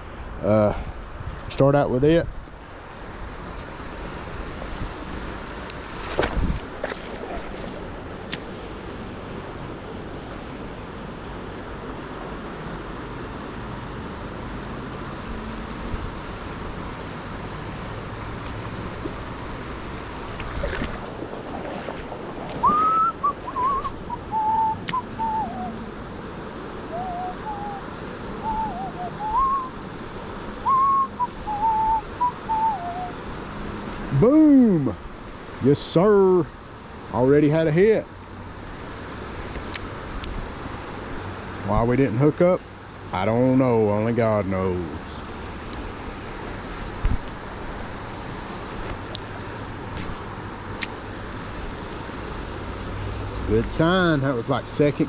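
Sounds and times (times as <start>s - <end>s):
stream rushing: 0.0s - 55.0s
person whistling a tune: 22.6s - 25.8s, 26.9s - 27.8s, 28.4s - 29.7s, 30.6s - 33.1s.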